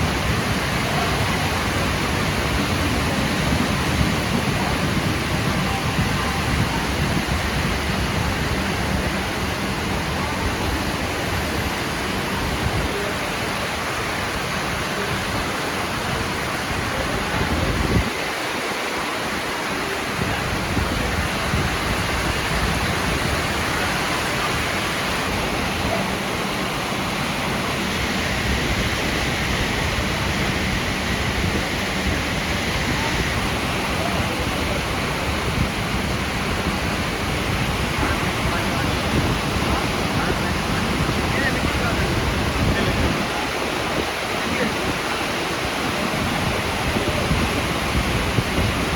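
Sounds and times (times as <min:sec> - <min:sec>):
heavy rain falling: 0:00.0 - 0:48.9.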